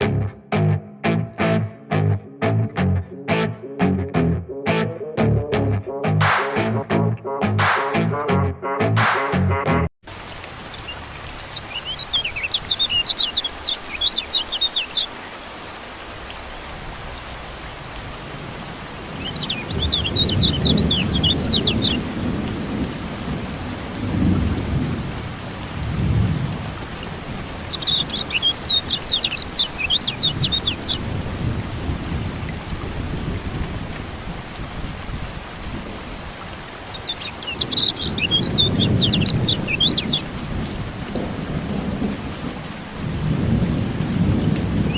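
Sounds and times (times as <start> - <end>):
steady rain: 10.0 - 44.9
bird chirping song: 10.7 - 15.1, 19.2 - 22.0, 27.4 - 31.0, 36.8 - 40.3
rolling thunder: 38.1 - 44.9.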